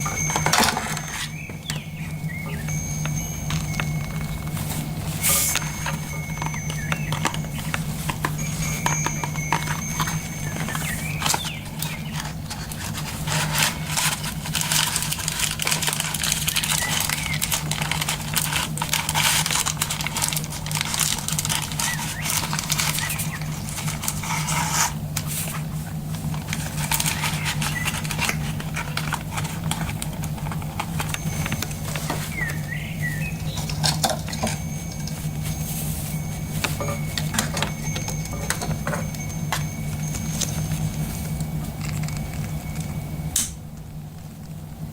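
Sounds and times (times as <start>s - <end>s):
bird chirps: 0.0s - 12.5s, 16.4s - 17.8s, 21.7s - 23.9s, 27.1s - 28.4s, 31.2s - 41.0s
low hum: 0.0s - 19.1s, 19.8s - 44.9s
crackling and clicking: 0.0s - 25.3s, 26.3s - 35.4s, 36.3s - 44.6s
rustling: 0.0s - 43.1s.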